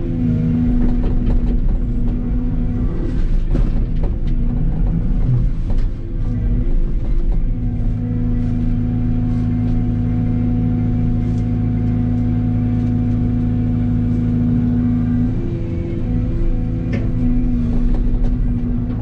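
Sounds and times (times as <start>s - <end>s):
diesel engine running steadily: 0.0s - 19.0s.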